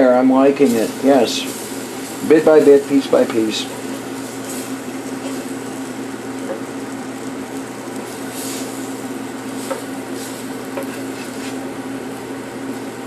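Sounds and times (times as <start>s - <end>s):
liver sizzling in a pan: 0.0s - 13.0s
steady hum: 0.0s - 13.0s
utensil clicks and scrapes on pan: 3.9s - 5.6s, 9.6s - 11.6s.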